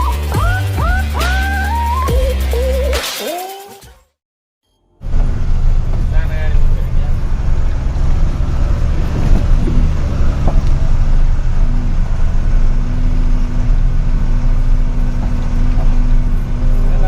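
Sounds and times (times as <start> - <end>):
truck engine rumbling: 5.0 - 17.0.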